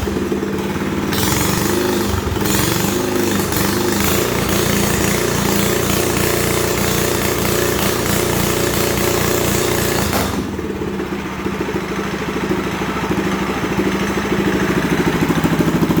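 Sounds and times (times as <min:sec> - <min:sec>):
minibike engine revving: 0:00.0 - 0:16.0.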